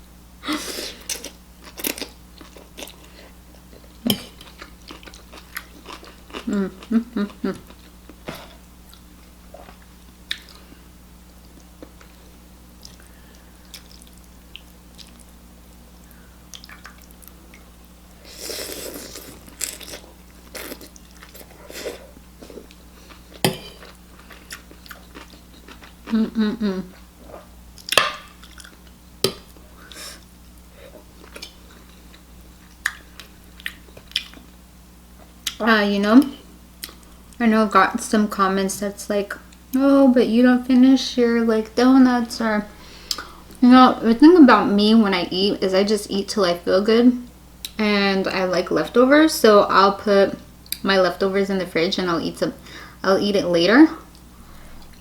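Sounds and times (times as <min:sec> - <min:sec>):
person crunching snack: 0:18.3 - 0:26.2
person murmuring: 0:26.1 - 0:26.9.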